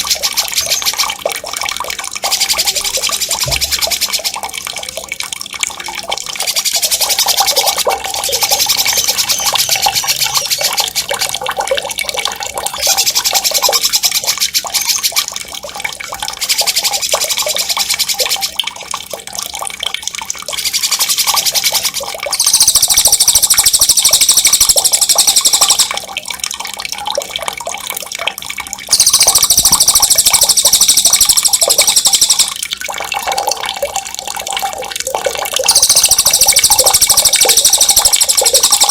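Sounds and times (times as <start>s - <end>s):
songbirds trilling: 0.0s - 1.2s, 6.4s - 11.2s, 20.6s - 26.0s, 28.9s - 32.6s, 35.7s - 38.9s
running water: 0.0s - 38.9s.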